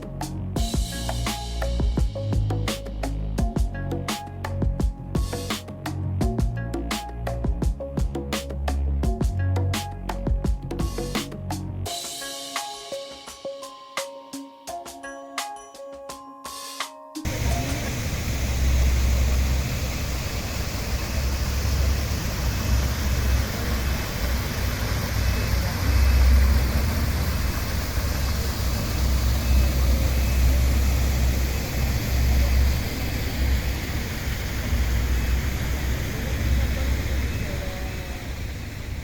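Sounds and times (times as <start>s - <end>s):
waterfall roaring: 17.3s - 38.2s.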